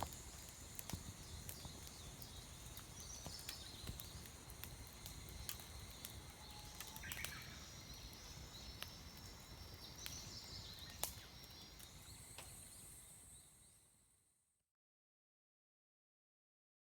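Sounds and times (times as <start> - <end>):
campfire crackling and popping: 0.0 - 13.2
steady hiss: 0.0 - 13.5
small birds chirping: 0.1 - 13.7.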